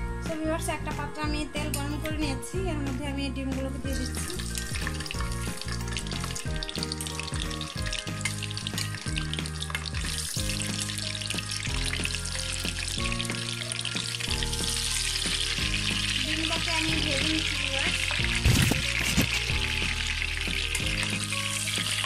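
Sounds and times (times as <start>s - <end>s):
background music: 0.0s - 22.0s
eggs sizzling in hot oil: 3.8s - 22.0s.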